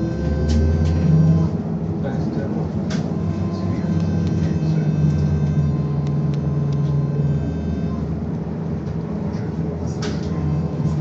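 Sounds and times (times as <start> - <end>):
trolleybus hum: 0.0 - 11.0
faint high whine: 1.2 - 8.2.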